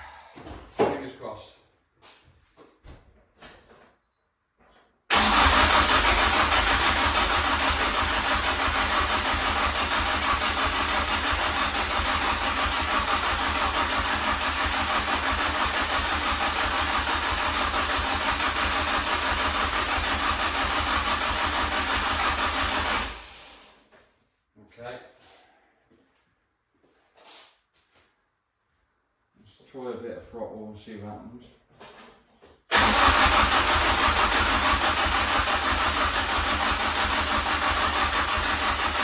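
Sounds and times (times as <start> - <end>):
car engine starting and running: 5.1 - 23.7, 32.7 - 39.0.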